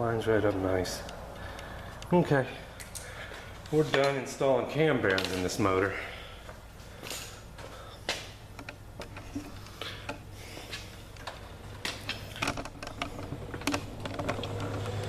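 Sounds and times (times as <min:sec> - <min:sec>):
hand tools clicking and tapping: 0:02.8 - 0:04.2.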